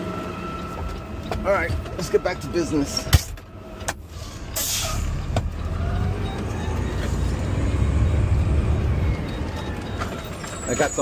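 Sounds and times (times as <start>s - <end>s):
diesel truck engine rumbling: 0.0s - 11.0s
air brakes hissing: 4.0s - 5.3s.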